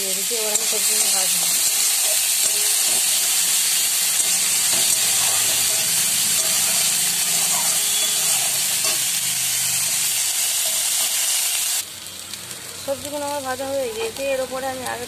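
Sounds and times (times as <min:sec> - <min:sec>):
vegetables sizzling in oil: 0:00.0 - 0:15.0
spatula stirring: 0:00.4 - 0:11.5.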